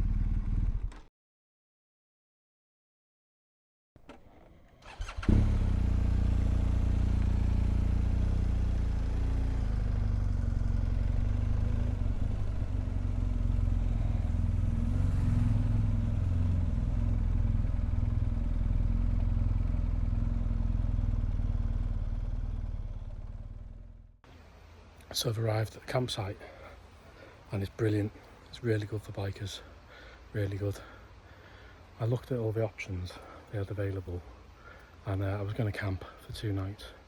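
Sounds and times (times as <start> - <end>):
motorcycle engine running at low revs: 0.0 - 1.1, 5.1 - 24.2.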